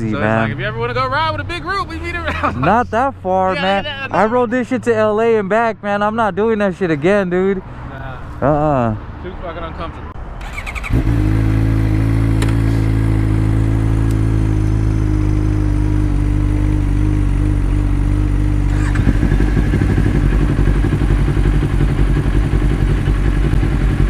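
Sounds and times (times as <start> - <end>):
motorcycle engine: 10.2 - 24.0.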